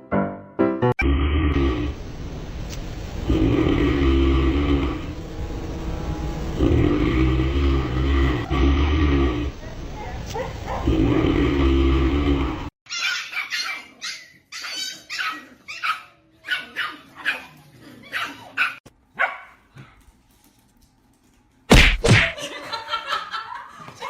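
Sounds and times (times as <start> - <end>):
dog barking high-pitched: 10.0 - 10.9, 12.9 - 17.5, 18.1 - 19.6.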